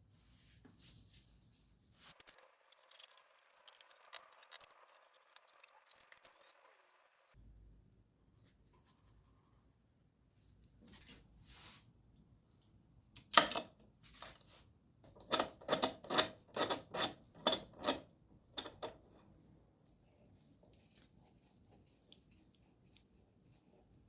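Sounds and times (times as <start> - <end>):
sharp clicks and knocks: 15.0 - 19.3.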